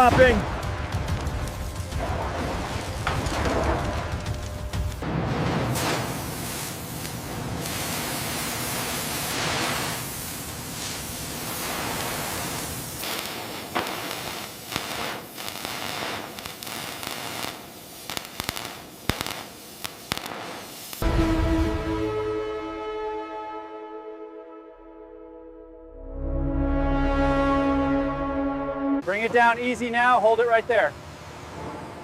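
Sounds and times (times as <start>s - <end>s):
sharp crackles and clicks: 0.0s - 5.1s, 5.7s - 21.1s
steady hiss: 5.6s - 21.0s
music with held tones: 21.0s - 29.0s.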